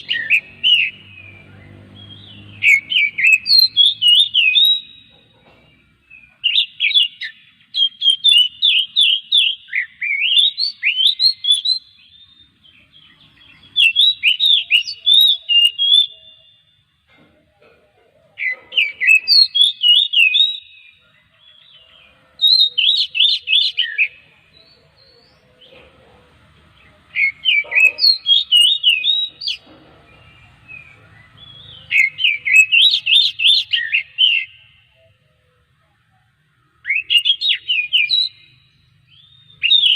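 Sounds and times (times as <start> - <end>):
bird singing whistled phrases: 0.0 - 5.2, 6.1 - 12.4, 13.6 - 16.8, 18.7 - 21.0, 22.4 - 24.2, 27.2 - 29.6, 30.7 - 34.7, 36.8 - 39.9.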